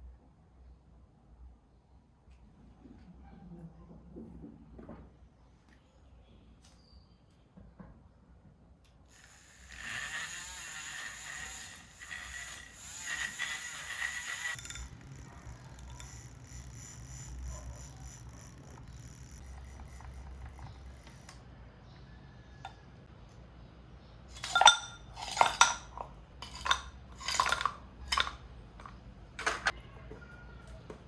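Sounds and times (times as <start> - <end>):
dishes and cutlery clinking: 24.4 - 29.8.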